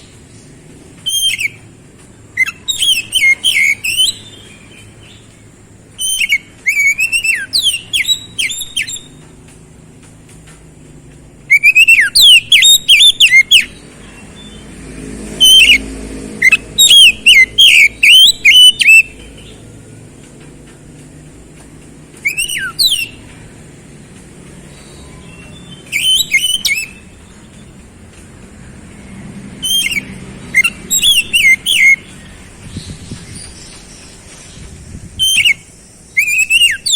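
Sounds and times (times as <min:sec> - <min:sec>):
bird singing whistled notes: 0:00.0 - 0:09.3, 0:11.5 - 0:14.7, 0:15.3 - 0:19.7, 0:22.2 - 0:23.4, 0:24.6 - 0:27.8, 0:29.6 - 0:36.9.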